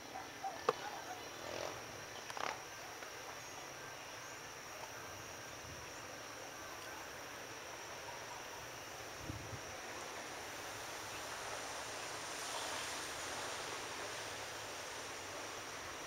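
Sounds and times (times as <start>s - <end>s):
constant high-pitched tone: 0.0s - 11.9s
even hiss: 0.0s - 16.0s.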